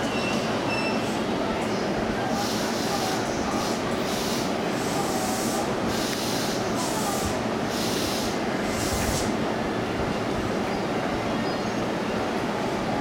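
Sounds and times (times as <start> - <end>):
high rail hiss: 2.3 - 9.5.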